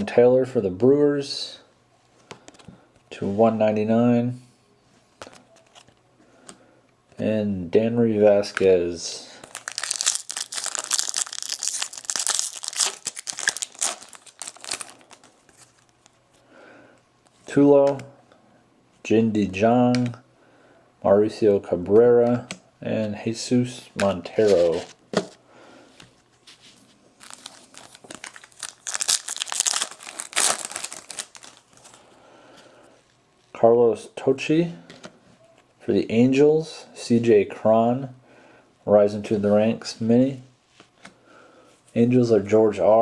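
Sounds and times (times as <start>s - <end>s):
wrapper crinkling and tearing: 9.4s - 16.2s, 27.2s - 32.0s.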